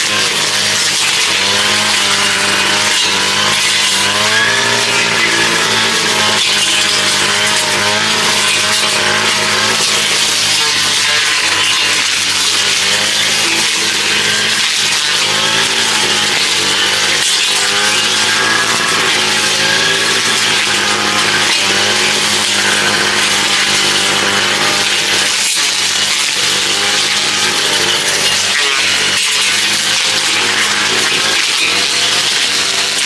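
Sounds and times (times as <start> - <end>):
small engine running: 0.0 - 33.0.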